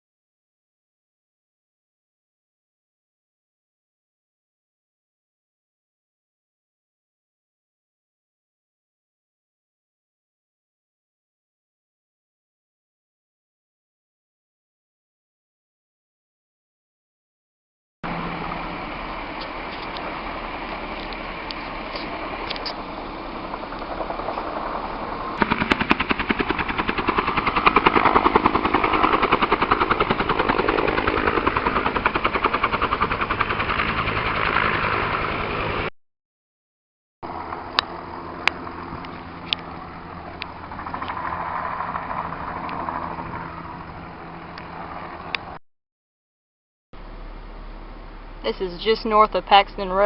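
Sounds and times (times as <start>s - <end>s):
wildfire crackling: 18.1s - 35.9s, 37.3s - 45.6s.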